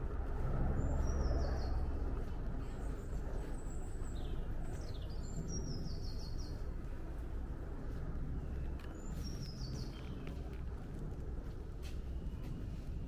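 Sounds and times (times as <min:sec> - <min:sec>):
steady low rumble: 0:00.0 - 0:13.0
songbirds calling: 0:00.7 - 0:11.0.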